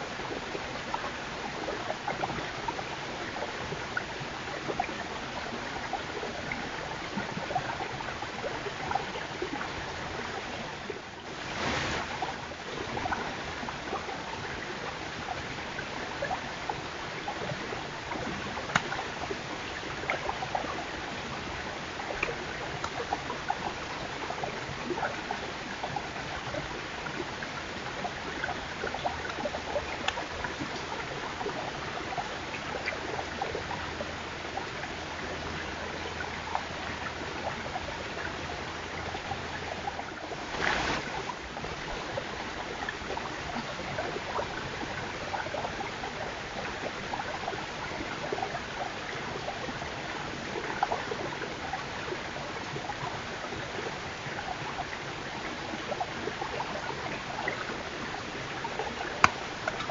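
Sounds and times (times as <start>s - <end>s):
steady hiss: 11.2s - 13.9s, 40.1s - 42.2s.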